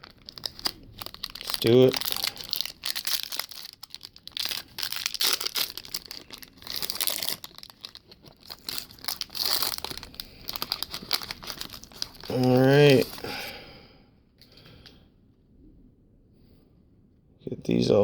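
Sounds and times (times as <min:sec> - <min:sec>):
foil pack tearing and crinkling: 0:00.0 - 0:13.5.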